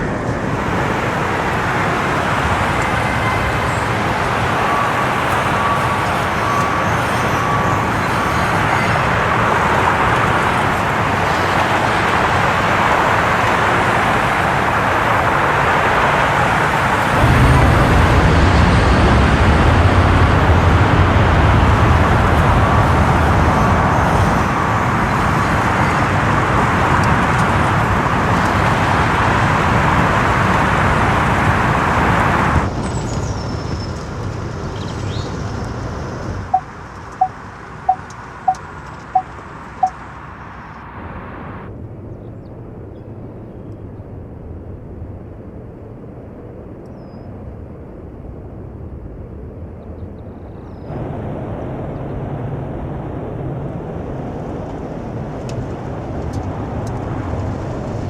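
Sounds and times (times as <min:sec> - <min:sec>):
vehicle and road noise: 0:00.0 - 0:58.0
deep rumble: 0:16.4 - 0:29.3.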